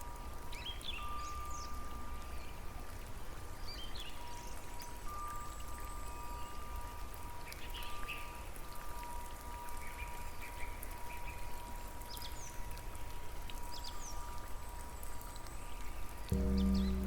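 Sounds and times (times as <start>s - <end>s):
steady rain: 0.0s - 17.0s
faint steady high tone: 16.3s - 17.0s.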